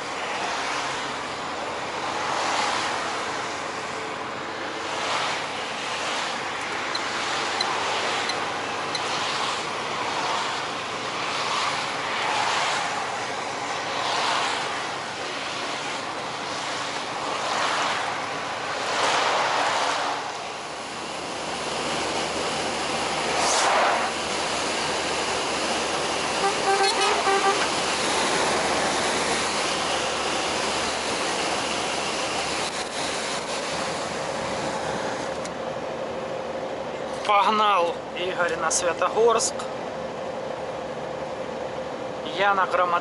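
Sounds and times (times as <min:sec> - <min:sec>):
road traffic passing: 0:00.0 - 0:43.0
vehicle horn tooting: 0:26.4 - 0:27.8.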